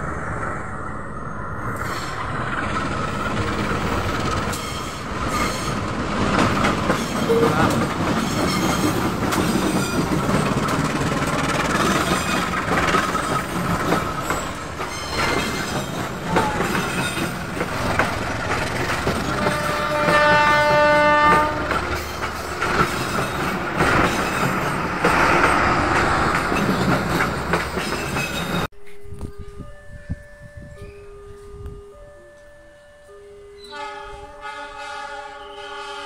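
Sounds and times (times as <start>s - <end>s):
diesel locomotive engine passing: 0.0s - 28.7s
train wheels clicking over rail joints: 1.8s - 29.0s.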